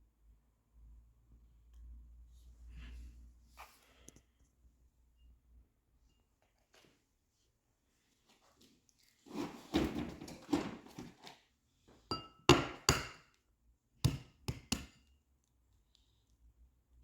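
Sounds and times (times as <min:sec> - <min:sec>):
rustling and scraping: 0:08.0 - 0:12.0
utensils knocking on counter: 0:12.1 - 0:13.2.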